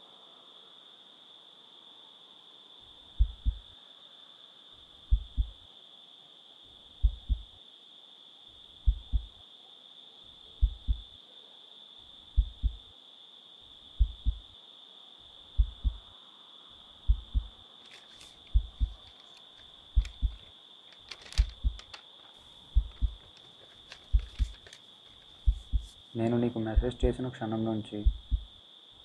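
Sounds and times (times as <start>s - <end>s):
heartbeat thumps: 3.2s - 3.6s, 5.1s - 5.6s, 7.0s - 7.6s, 8.8s - 9.4s, 10.6s - 11.1s, 12.4s - 12.9s, 14.0s - 14.5s, 15.6s - 16.1s, 17.1s - 17.6s, 18.5s - 19.0s, 19.9s - 20.5s, 21.4s - 21.9s, 22.7s - 23.2s, 24.0s - 24.6s, 25.4s - 26.0s, 26.7s - 27.2s, 28.0s - 28.6s.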